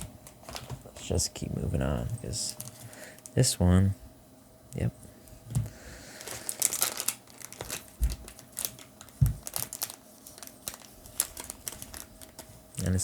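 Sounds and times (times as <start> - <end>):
foil wrappers crinkling: 0.0 - 1.1, 2.3 - 3.4, 6.0 - 13.0
soft low thumps: 9.2 - 9.5.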